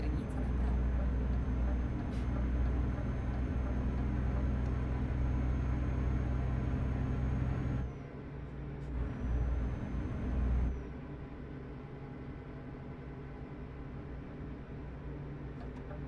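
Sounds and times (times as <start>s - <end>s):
truck engine running: 0.0s - 7.9s, 8.8s - 10.8s.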